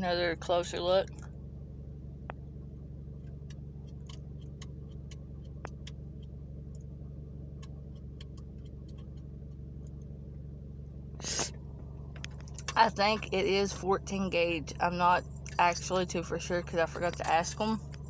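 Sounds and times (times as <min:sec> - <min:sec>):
car engine idling: 0:00.0 - 0:18.0
faint clicks: 0:12.1 - 0:12.8.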